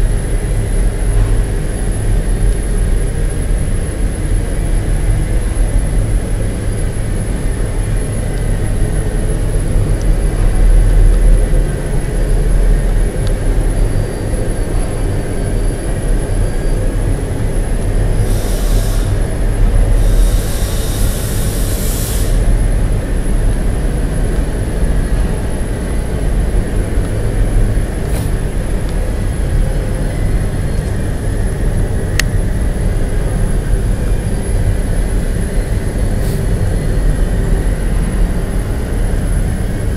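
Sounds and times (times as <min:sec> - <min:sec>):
high whine: 0:00.0 - 0:39.9
industrial machinery rumble: 0:00.0 - 0:39.9
high hissing: 0:18.2 - 0:22.5.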